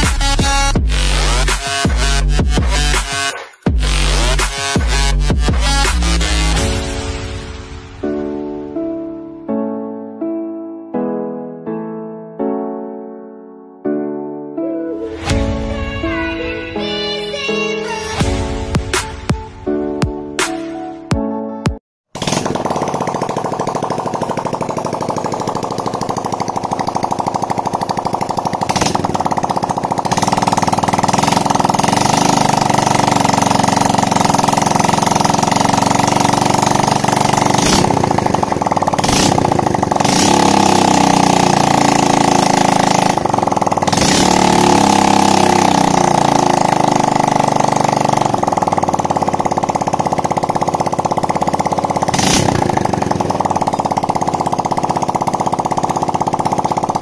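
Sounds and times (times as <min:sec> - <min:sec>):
motorcycle engine revving: 0:00.0 - 0:07.1, 0:22.2 - 0:57.0.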